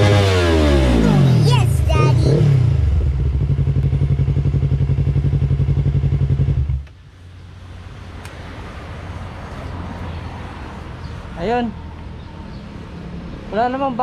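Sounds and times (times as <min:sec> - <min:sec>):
motorcycle engine running: 0:00.0 - 0:06.9.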